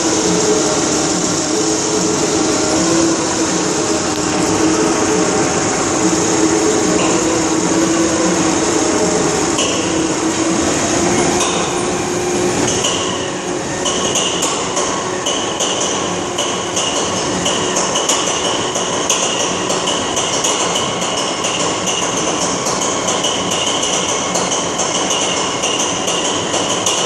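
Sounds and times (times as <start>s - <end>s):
diesel locomotive engine running: 0.0s - 19.8s.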